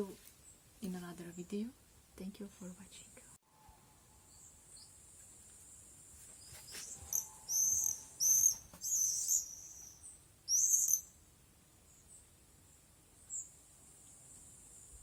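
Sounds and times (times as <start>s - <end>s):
small birds chirping: 4.3s - 11.2s
high insect trill: 6.0s - 11.1s.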